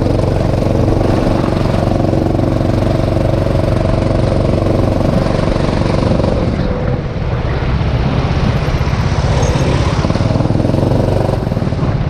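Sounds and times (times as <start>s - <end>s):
go-kart engine running: 0.0s - 12.0s
steady rushing noise: 0.0s - 12.0s.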